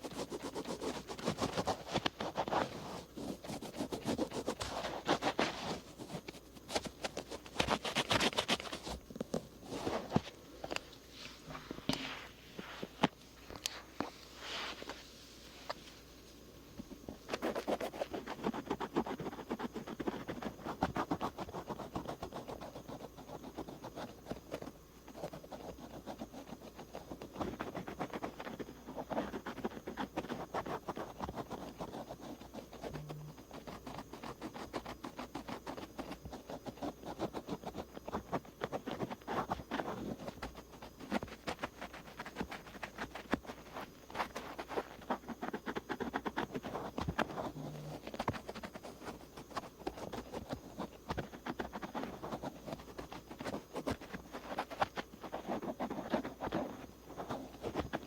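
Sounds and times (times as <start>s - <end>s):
cotton swab scratching microphone: 0.0s - 10.3s, 17.0s - 58.0s.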